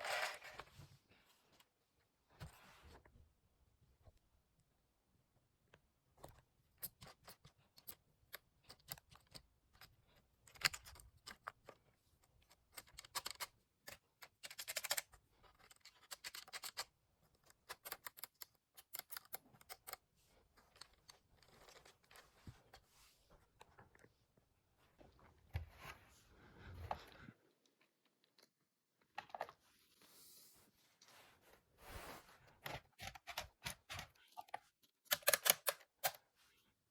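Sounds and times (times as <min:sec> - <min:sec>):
plastic toy parts clicking: 0:06.8 - 0:11.8, 0:12.4 - 0:20.0, 0:35.0 - 0:36.2.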